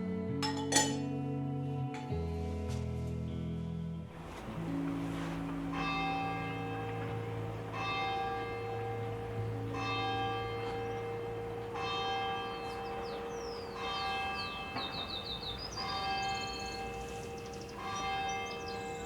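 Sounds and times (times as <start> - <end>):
church bell tolling: 4.3 - 19.0.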